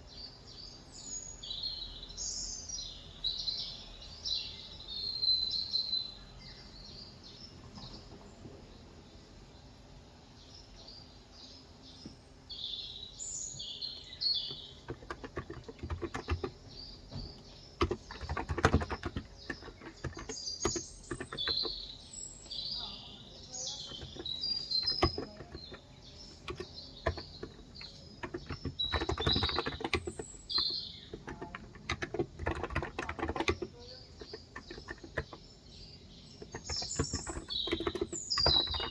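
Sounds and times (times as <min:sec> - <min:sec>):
small birds chirping: 0:00.0 - 0:38.9
keyboard keys clicking: 0:14.4 - 0:21.9, 0:23.8 - 0:35.5, 0:36.3 - 0:38.9.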